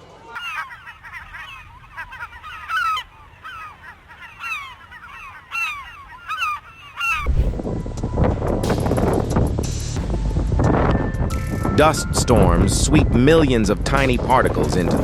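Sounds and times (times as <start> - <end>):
flock of birds calling: 0.0 - 7.3
loud steady rushing noise: 7.2 - 8.2.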